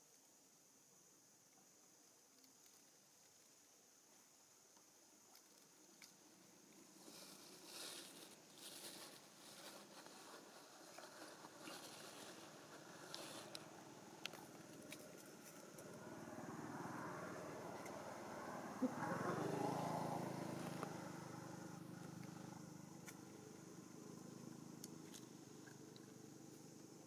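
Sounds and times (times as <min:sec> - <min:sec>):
motor vehicle passing: 0:11.7 - 0:26.0.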